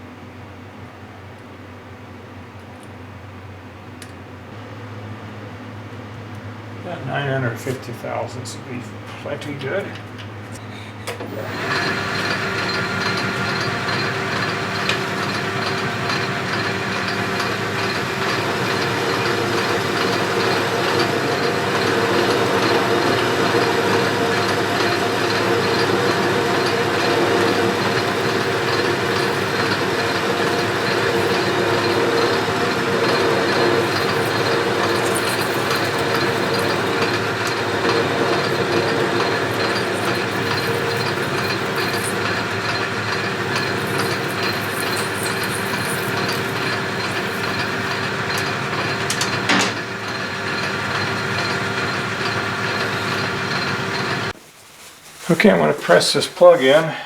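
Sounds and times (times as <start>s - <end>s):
metal lathe running: 11.2s - 54.3s.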